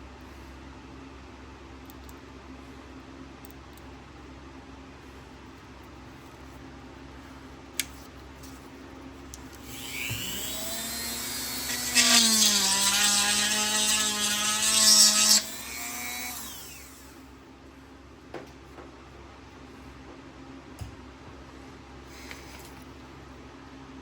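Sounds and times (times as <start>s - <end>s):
rotary tool whining and cutting: 9.6s - 17.2s.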